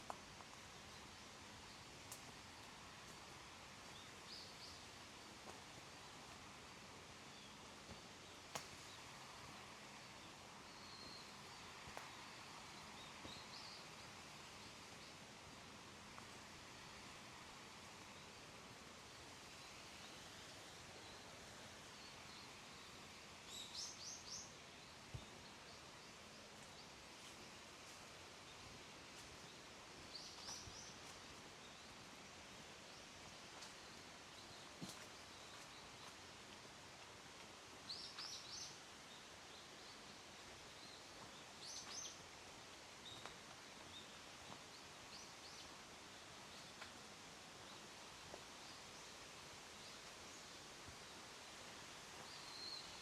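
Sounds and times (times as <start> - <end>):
forest creek flowing: 0.0 - 53.0
songbird calling: 52.2 - 53.0.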